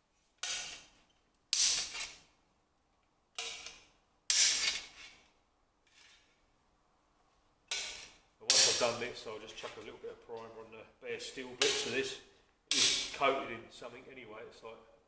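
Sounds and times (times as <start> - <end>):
tool strikes on sheet steel: 7.7 - 9.0, 11.6 - 11.9, 12.7 - 13.2.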